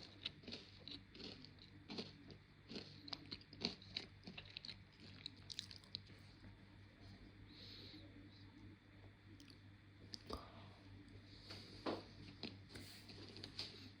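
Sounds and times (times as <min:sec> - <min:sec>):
chewing crunchy food: 0:00.0 - 0:06.5, 0:11.5 - 0:14.0.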